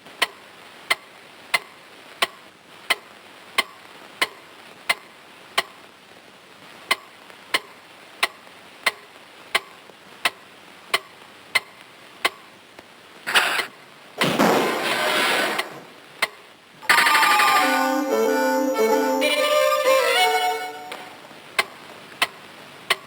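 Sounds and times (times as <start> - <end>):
loud burst of sound: 14.2 - 16.0.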